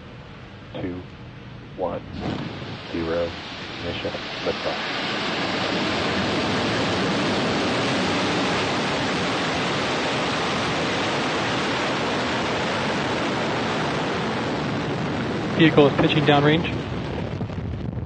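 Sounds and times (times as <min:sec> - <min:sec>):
rocket engines roaring: 0:00.0 - 0:18.0.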